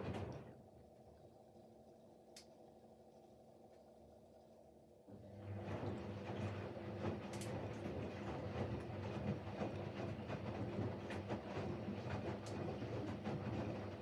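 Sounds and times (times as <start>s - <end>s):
washing machine motor humming: 5.1s - 14.0s
water sloshing in drum: 5.8s - 14.0s.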